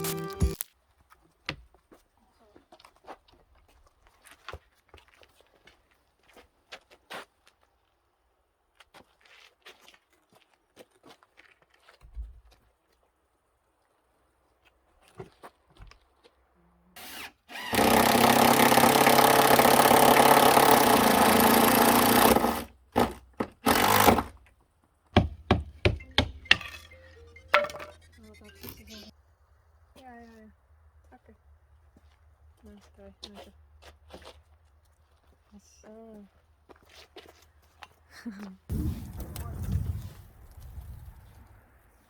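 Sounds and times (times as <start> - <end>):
engine-driven saw cutting wood: 17.0 - 24.4.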